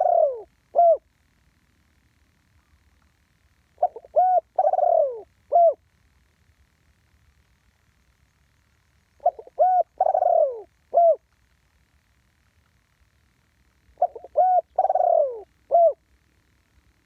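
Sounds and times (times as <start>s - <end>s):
dove cooing: 0.0s - 1.1s, 3.8s - 5.8s, 9.2s - 11.3s, 13.9s - 16.0s.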